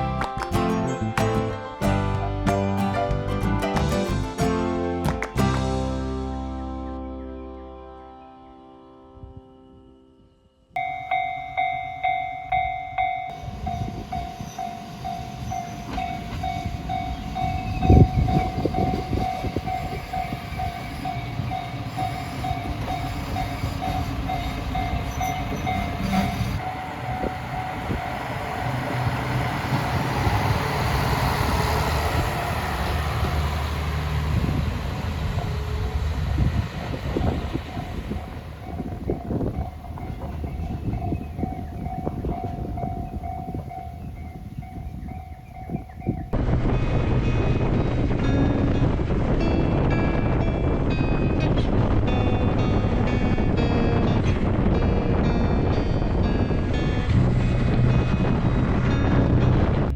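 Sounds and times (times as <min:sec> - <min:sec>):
level-crossing alarm dinging: 0:10.8 - 0:46.4
train wheel rumble: 0:10.8 - 0:59.9.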